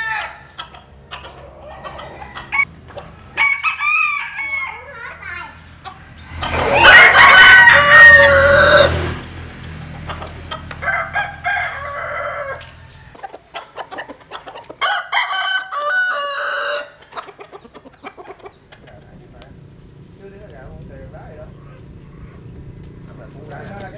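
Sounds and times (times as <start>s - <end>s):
roosters crowing: 0.0s - 5.2s, 5.8s - 19.4s.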